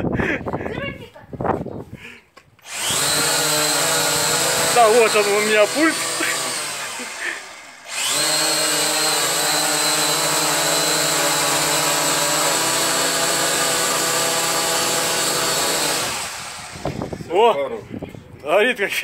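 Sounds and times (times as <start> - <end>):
drone propellers whining: 2.6 - 17.3.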